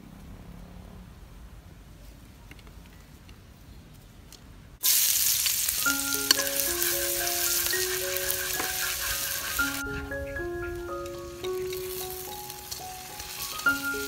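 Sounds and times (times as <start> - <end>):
garlic sizzling in hot oil: 4.8 - 14.0
chopsticks stirring in wok: 5.0 - 14.0
light background music: 5.8 - 14.0.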